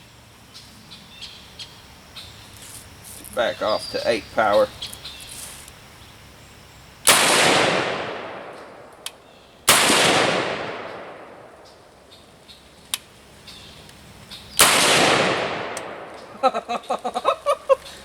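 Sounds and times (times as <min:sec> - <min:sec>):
rifle shots with echo: 0:07.1 - 0:09.0, 0:09.7 - 0:11.6, 0:14.6 - 0:16.3.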